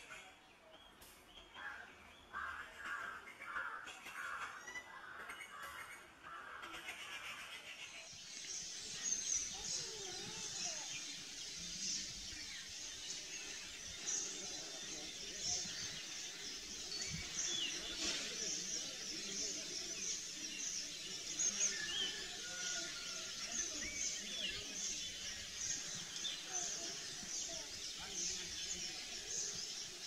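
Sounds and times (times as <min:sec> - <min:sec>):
bird chirps and calls: 0:06.9 - 0:30.0.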